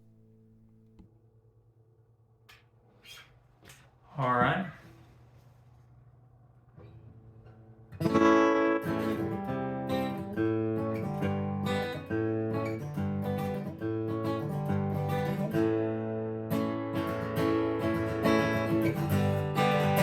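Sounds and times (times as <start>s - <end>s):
acoustic guitar strumming: 6.8s - 20.0s.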